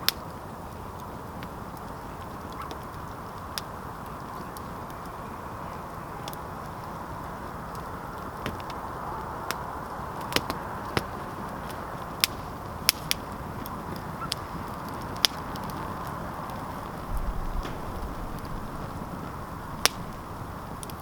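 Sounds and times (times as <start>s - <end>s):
campfire crackling and popping: 0.0s - 21.0s
short low rumble: 17.0s - 20.7s.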